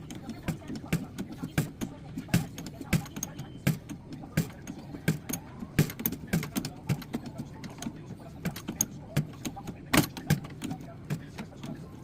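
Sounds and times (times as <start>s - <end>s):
sharp clicks and light knocks: 0.0s - 12.0s.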